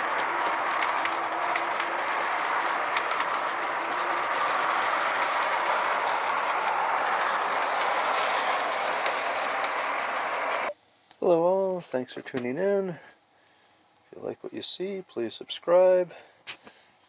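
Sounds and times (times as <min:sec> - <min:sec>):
model train rolling whir: 0:00.0 - 0:10.7
wheels clicking on rails: 0:00.0 - 0:10.7.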